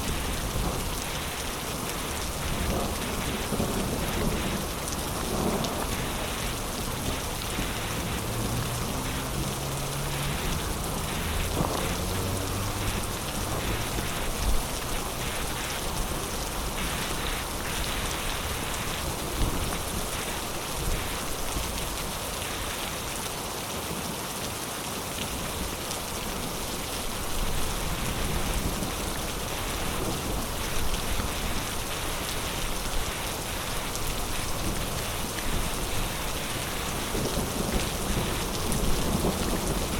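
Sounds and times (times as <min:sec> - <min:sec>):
sharp raindrop hits: 0:00.0 - 0:22.7
heavy rain pouring: 0:00.0 - 0:39.9.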